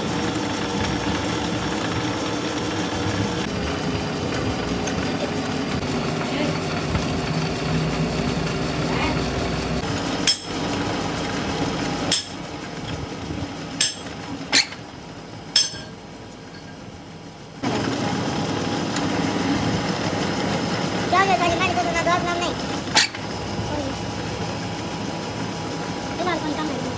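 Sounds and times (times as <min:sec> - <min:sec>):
machine hum: 0:00.0 - 0:26.9
hammer striking steel: 0:10.2 - 0:10.8, 0:12.1 - 0:12.4, 0:13.8 - 0:14.8, 0:15.6 - 0:16.1.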